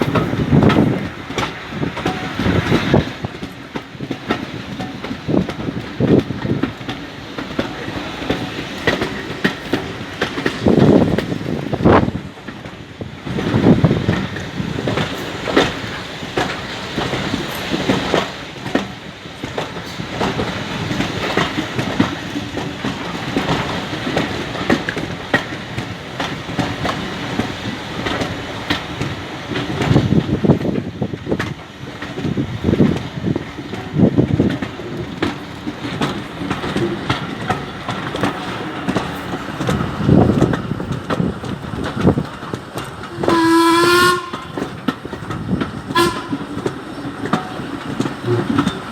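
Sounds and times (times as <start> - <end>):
train wheels clattering over rail joints: 0.0 - 48.9
steam locomotive whistle blast: 43.2 - 44.6, 45.9 - 46.5.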